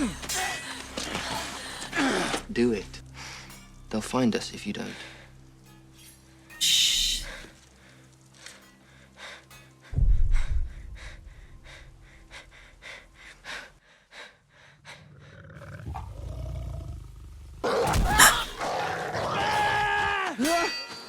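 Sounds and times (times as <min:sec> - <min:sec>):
heavy low thud: 0:10.0 - 0:11.6
animal snarling and roaring: 0:15.0 - 0:20.3.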